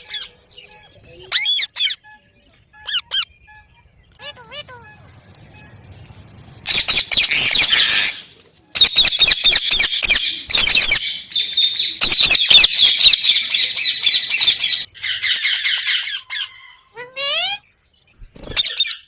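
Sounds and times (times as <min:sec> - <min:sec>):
parakeet screeching calls: 0:01.3 - 0:02.0, 0:06.7 - 0:08.2, 0:08.8 - 0:17.6.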